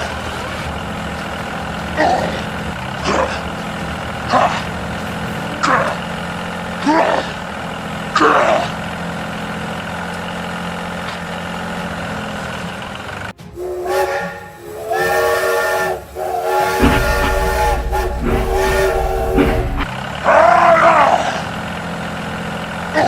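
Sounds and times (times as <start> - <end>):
chord horn blasts: 4.9 - 6.9, 13.4 - 19.9
low motor hum: 13.4 - 19.9.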